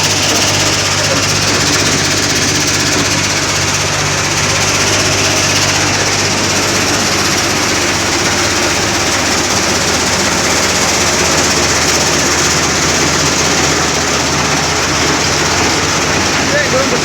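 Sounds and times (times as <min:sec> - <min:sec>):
diesel engine hum: 0:00.0 - 0:17.0.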